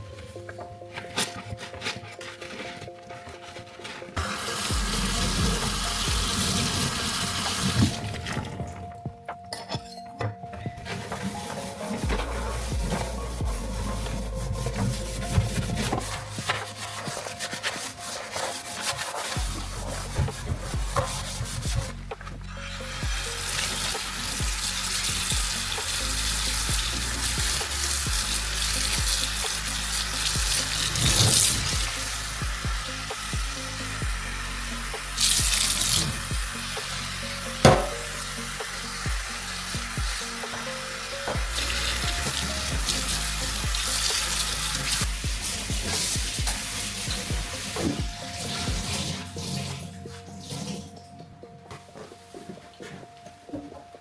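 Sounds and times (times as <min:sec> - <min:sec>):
soft background music: 0:00.0 - 0:54.0
tap water running into sink: 0:04.2 - 0:08.7, 0:22.9 - 0:49.7
tap running into sink: 0:37.6 - 0:38.3.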